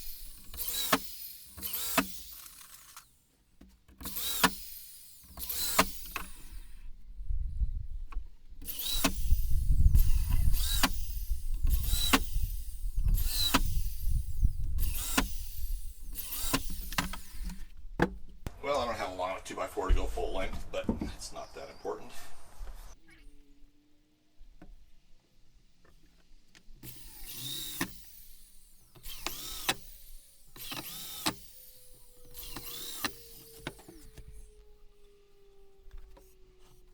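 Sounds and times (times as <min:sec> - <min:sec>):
power drill whining in bursts: 0:00.0 - 0:03.2, 0:04.0 - 0:06.9, 0:08.6 - 0:17.8, 0:19.2 - 0:23.0, 0:26.8 - 0:36.9.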